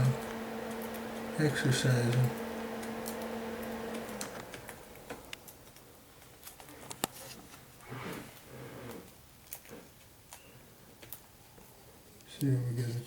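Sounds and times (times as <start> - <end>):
steady hum: 0.0 - 5.6.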